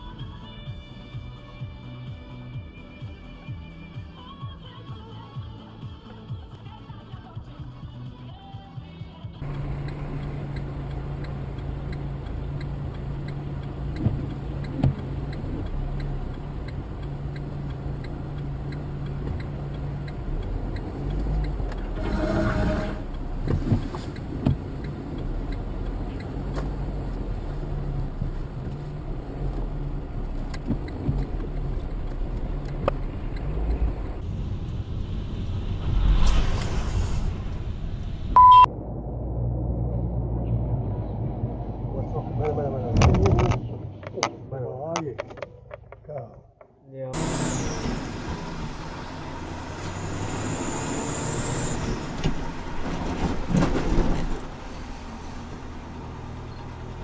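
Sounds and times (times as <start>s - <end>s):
vehicle engine and road rumble: 0.0s - 57.0s
short loud beep: 38.4s - 38.7s.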